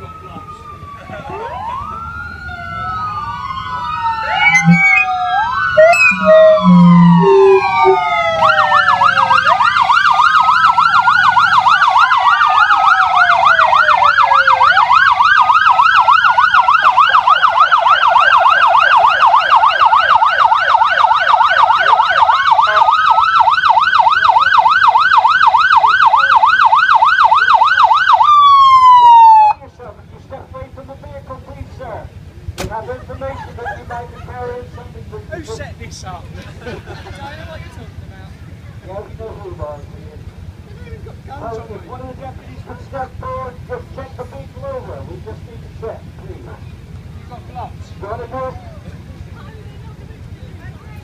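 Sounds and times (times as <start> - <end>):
siren rapid yelp: 0.0 - 29.6
police sirens wailing: 0.0 - 29.7
short low siren tones: 2.4 - 10.0.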